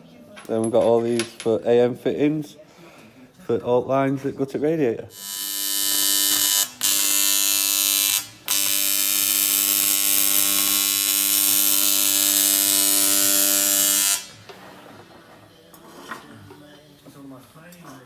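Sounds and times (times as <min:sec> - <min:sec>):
power tool whining: 0:05.1 - 0:14.3.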